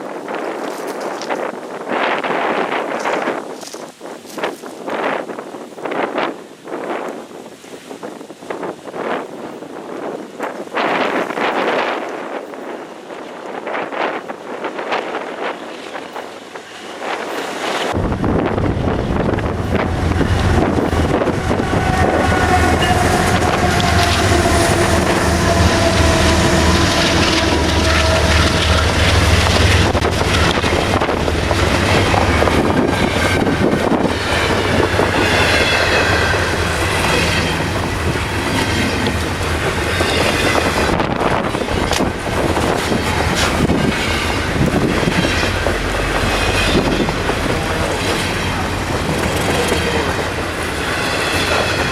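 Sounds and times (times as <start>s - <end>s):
diesel locomotive engines rumbling: 9.0s - 51.9s
train wheel clatter: 13.2s - 51.9s
high-pitched wheel squeal: 21.1s - 29.0s.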